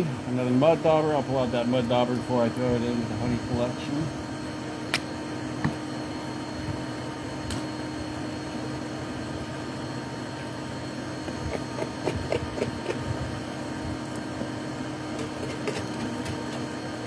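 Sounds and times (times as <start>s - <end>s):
machine hum with held tone: 0.0s - 17.0s.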